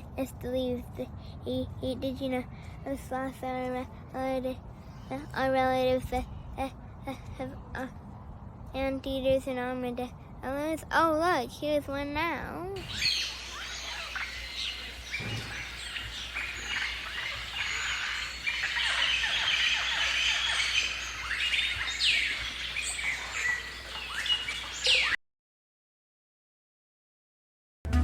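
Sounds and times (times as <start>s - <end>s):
chorus of birds chirping: 12.8s - 25.2s.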